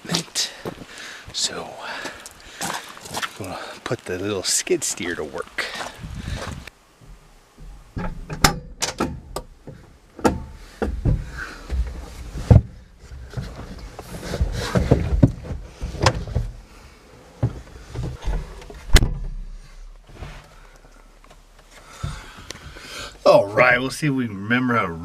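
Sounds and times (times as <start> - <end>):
knocks clanks and rattles in a cab: 7.6 - 16.6.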